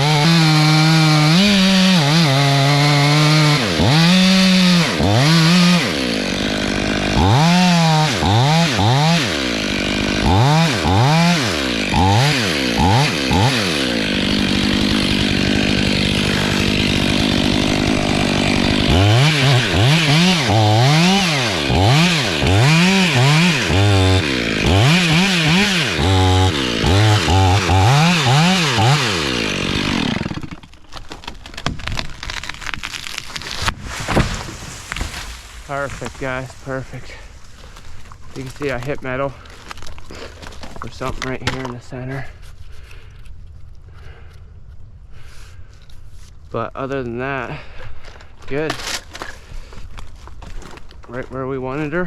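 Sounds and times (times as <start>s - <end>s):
chainsaw cutting log: 0.0s - 42.3s.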